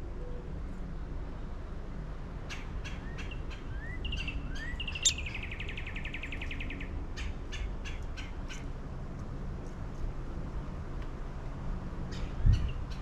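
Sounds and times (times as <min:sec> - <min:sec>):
fast bird trill: 0:02.5 - 0:07.3.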